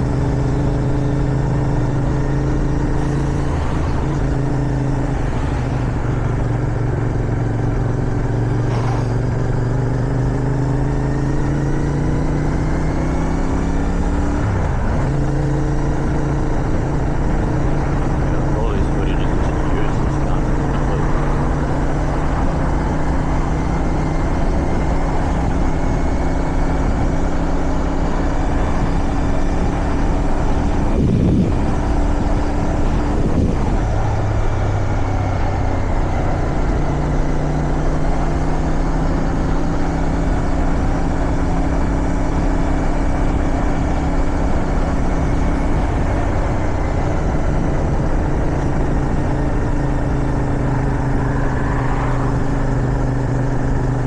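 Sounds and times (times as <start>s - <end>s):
motorcycle engine cruising: 0.0s - 54.0s
wind noise: 19.2s - 36.3s.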